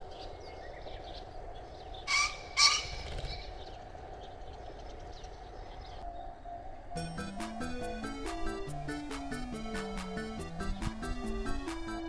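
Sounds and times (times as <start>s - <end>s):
small birds chirping: 0.0s - 12.0s
pheasant crowing: 2.0s - 3.7s.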